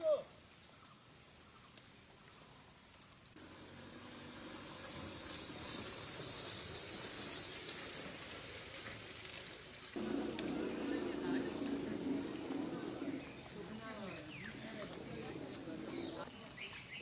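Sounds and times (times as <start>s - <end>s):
floodwater rushing: 3.4s - 16.3s.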